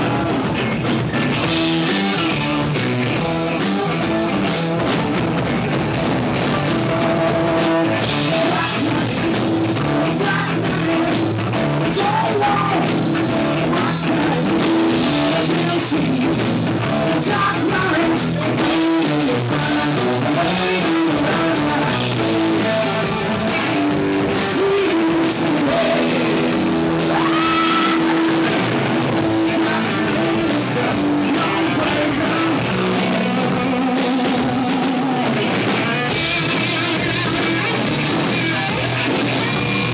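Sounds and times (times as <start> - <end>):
rock band playing live: 0.0 - 39.9
person singing: 6.9 - 35.5.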